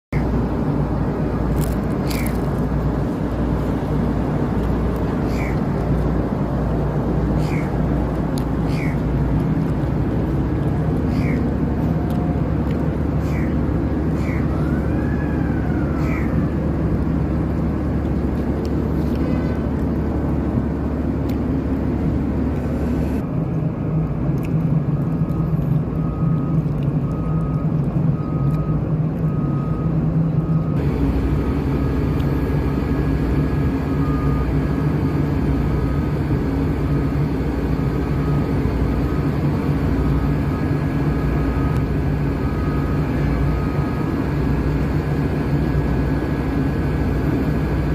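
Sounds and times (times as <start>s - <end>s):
diesel machinery humming: 0.0s - 47.9s
warning alarm beeps: 25.4s - 31.6s.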